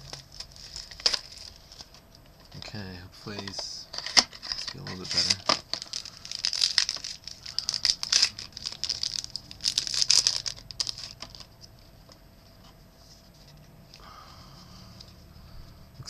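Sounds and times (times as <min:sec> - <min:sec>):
wrapper tearing and crinkling: 0:00.0 - 0:02.0, 0:04.0 - 0:11.5.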